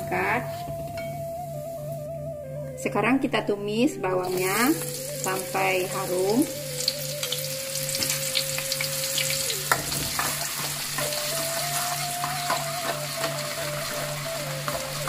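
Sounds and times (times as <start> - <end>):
shallots sizzling in hot oil: 4.2 - 15.0
spatula scraping and knocking pan: 9.7 - 11.2.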